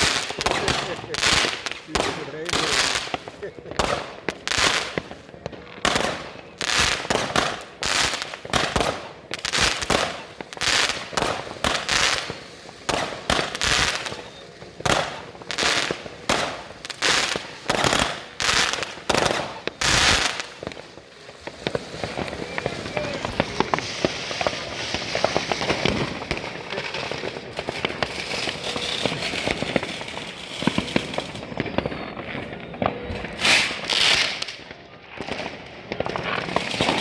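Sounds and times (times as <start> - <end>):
fireworks and firecrackers banging: 0.0 - 37.0.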